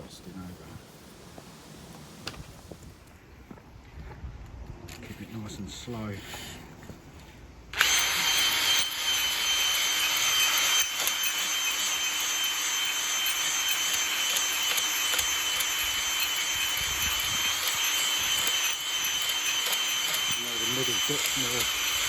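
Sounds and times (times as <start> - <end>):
hone scraping hiss: 0.0 - 3.0
electric drill whining: 7.7 - 22.0.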